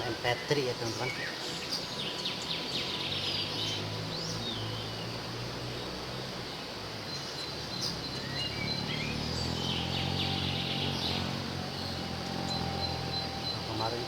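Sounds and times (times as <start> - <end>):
bird chirps and call notes: 7.2 - 14.0
steady low hum: 7.6 - 14.0.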